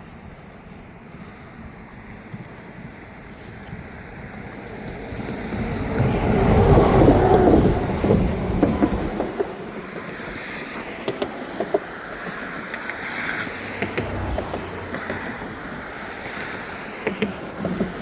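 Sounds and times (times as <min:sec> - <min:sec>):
wheels clicking over rail joints: 0:00.0 - 0:18.0
freight train rolling past: 0:04.0 - 0:17.4.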